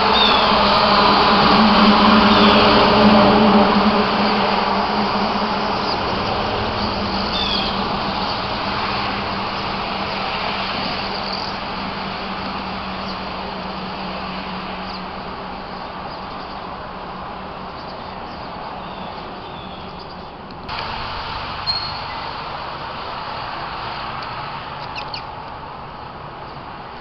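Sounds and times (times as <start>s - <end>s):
vehicle rushing past: 0.0s - 17.7s
faint bird chirps: 21.6s - 22.2s.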